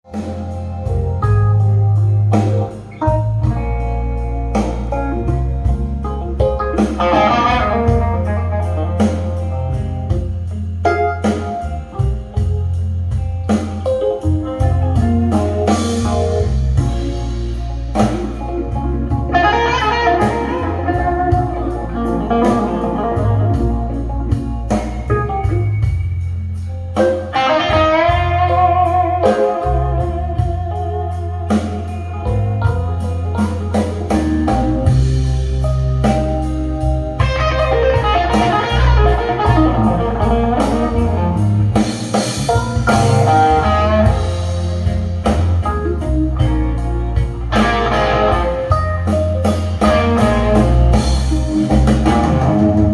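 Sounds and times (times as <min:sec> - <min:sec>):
blues music over loudspeakers: 0:00.0 - 0:52.9.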